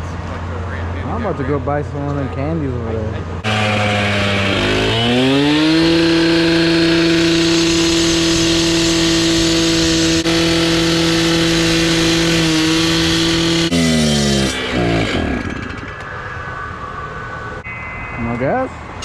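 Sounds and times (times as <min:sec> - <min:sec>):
engine revving: 0:03.4 - 0:16.4.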